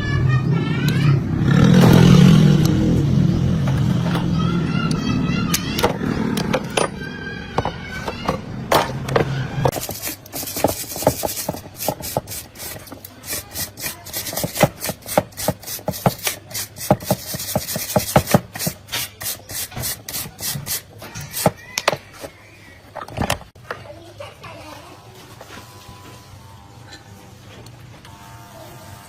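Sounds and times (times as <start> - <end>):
hand tool rasping strokes: 9.1 - 22.4.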